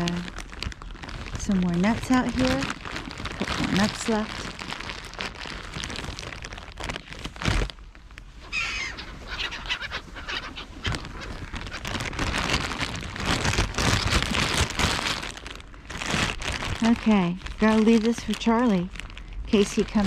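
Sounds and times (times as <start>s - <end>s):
rustling and handling noise: 0.0s - 20.0s
birds calling: 8.5s - 11.9s.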